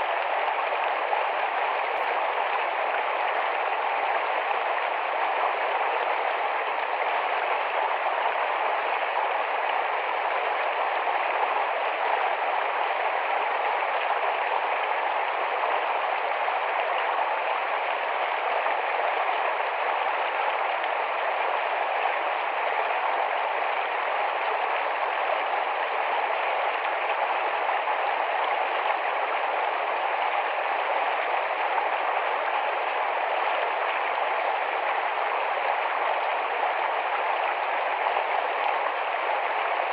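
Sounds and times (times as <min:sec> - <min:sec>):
stream rushing and babbling: 0:00.0 - 0:39.9.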